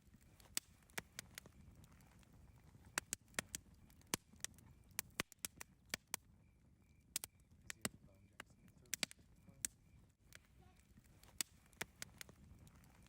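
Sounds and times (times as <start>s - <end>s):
burning wood popping: 0.0s - 13.0s
low rumble of fire: 0.0s - 13.0s.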